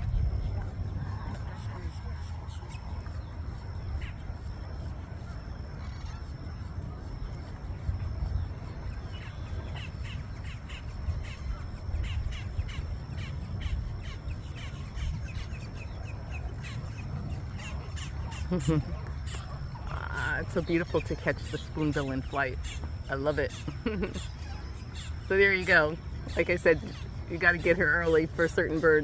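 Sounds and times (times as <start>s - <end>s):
low steady rumble: 0.0s - 29.0s
birds giving harsh calls: 8.2s - 29.0s.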